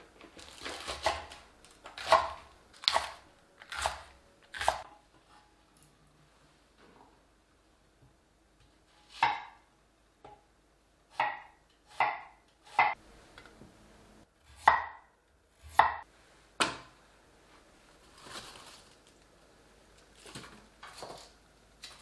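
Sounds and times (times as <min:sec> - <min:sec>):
soft rustle: 0:17.4 - 0:19.2.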